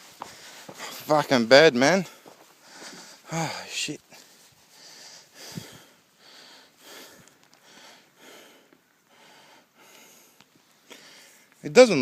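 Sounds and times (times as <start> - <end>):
person breathing hard: 2.2 - 11.5.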